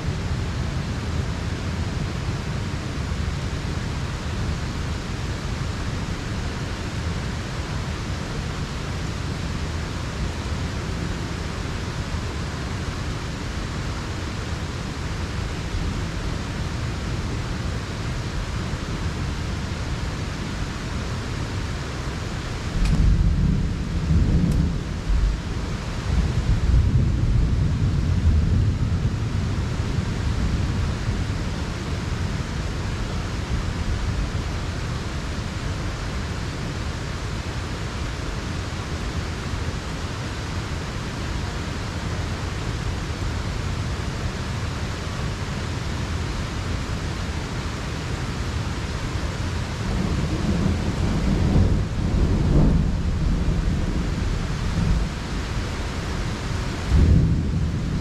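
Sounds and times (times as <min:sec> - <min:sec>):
heavy rain pouring: 0:00.0 - 0:58.0
low thunder rumbling: 0:22.6 - 0:34.2, 0:49.6 - 0:58.0.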